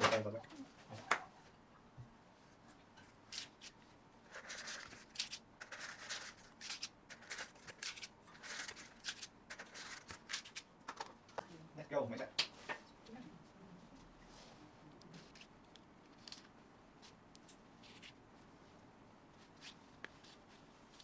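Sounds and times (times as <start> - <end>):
scraping and rustling: 16.1 - 21.0.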